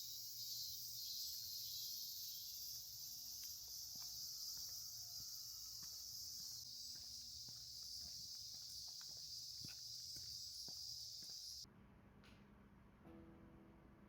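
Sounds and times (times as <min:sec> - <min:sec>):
insects chirring: 0:00.0 - 0:11.6.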